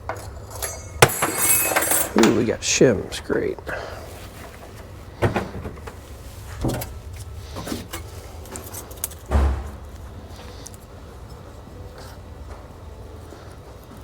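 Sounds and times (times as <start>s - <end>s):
metal parts clanking: 0.0s - 3.6s
small metal pieces jingling: 0.4s - 2.6s.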